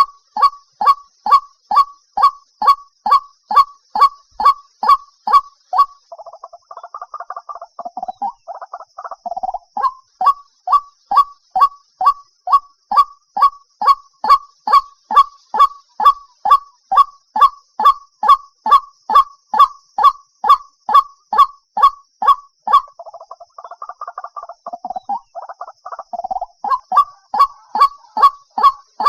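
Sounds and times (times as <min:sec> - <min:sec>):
bird chattering: 0:00.0 - 0:29.0
waterhen calling: 0:00.0 - 0:29.0.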